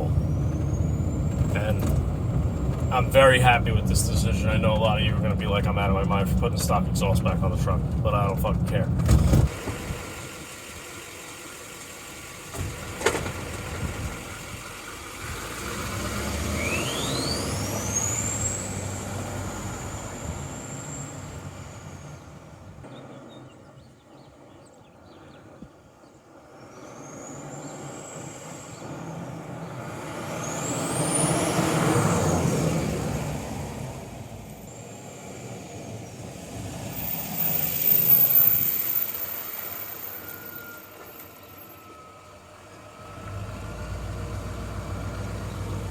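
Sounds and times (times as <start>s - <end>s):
diesel engine revving: 0.0s - 23.4s, 26.5s - 45.9s
turbo whistle: 37.5s - 42.3s.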